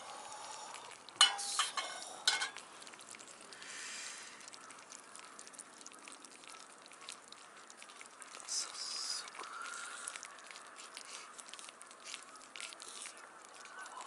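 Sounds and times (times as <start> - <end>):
food sizzling in a pan: 0.0 - 2.6.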